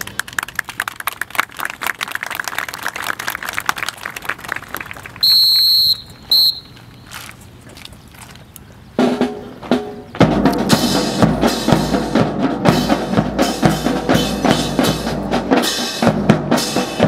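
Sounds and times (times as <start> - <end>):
clatter of clicks and claps: 0.0 - 5.2
whistle blasts: 5.2 - 7.1.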